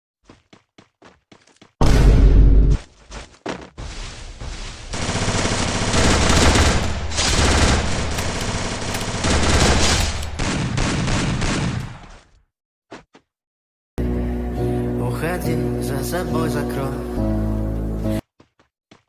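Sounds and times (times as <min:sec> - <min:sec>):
rapid sharp bangs: 0:04.9 - 0:12.2.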